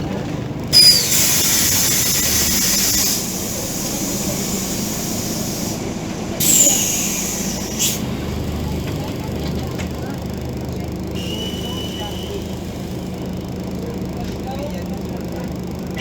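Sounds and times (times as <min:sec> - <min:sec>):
diesel engine idling: 0:00.0 - 0:16.0
bus air system hissing: 0:00.7 - 0:14.2
brief falling whistle: 0:00.8 - 0:03.3, 0:11.2 - 0:12.6.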